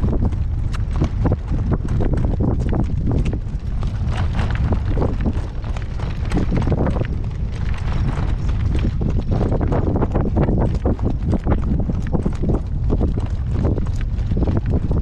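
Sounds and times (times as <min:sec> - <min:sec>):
horse hooves clip-clopping: 0:00.0 - 0:15.0
wind buffeting microphone: 0:00.0 - 0:15.0.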